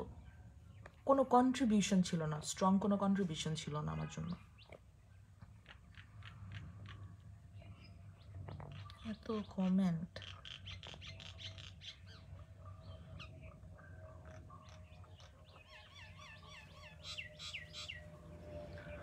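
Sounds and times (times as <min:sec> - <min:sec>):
birds chirping: 0:00.0 - 0:19.0
faint hum: 0:11.8 - 0:19.0.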